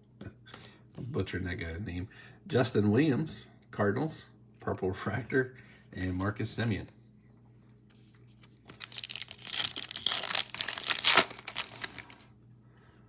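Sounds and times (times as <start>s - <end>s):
foil wrapper tearing and crinkling: 8.7s - 12.3s.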